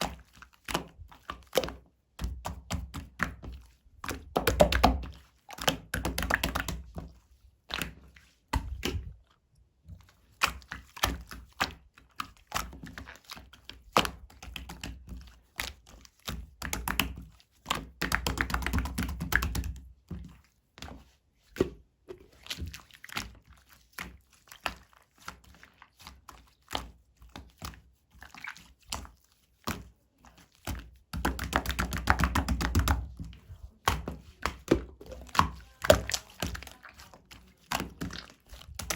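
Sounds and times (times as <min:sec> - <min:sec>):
slime squishing by hand: 0:00.0 - 0:38.9.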